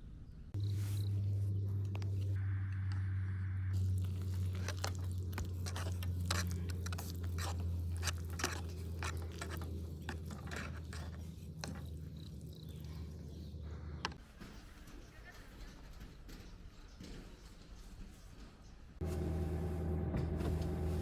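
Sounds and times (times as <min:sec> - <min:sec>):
steady low hum: 0:00.0 - 0:14.2, 0:19.0 - 0:21.0
wood fire crackling: 0:03.8 - 0:12.9.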